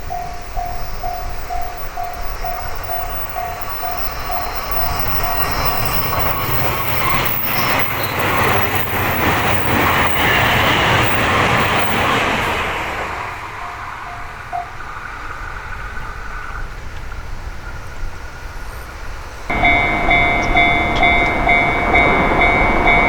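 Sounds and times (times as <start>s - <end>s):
level crossing bell ringing: 0.0s - 6.4s, 13.5s - 14.8s, 19.5s - 23.0s
electric train passing: 0.0s - 23.0s
train wheels clicking on rails: 0.0s - 23.0s.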